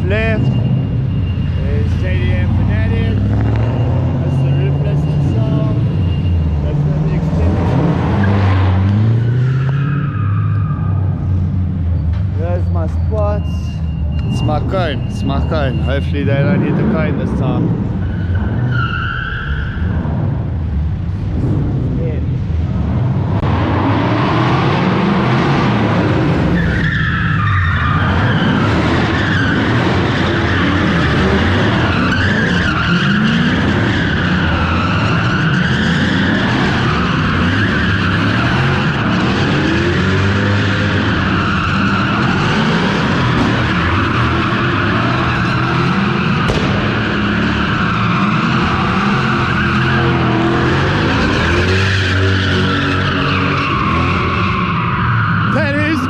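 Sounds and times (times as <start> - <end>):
tyres squealing and skidding: 0.0 - 20.5, 23.5 - 56.0
car engine revving hard: 2.4 - 6.0, 6.7 - 9.7, 27.9 - 54.6.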